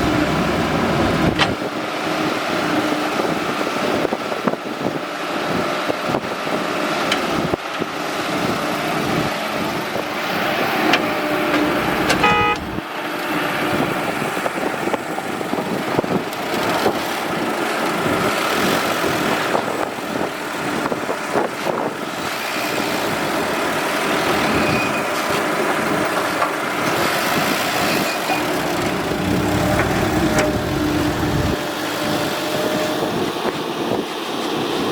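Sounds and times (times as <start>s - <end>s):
excavator engine running: 0.0s - 1.7s, 9.6s - 13.2s, 25.4s - 33.0s
brief horn toot: 11.0s - 12.8s.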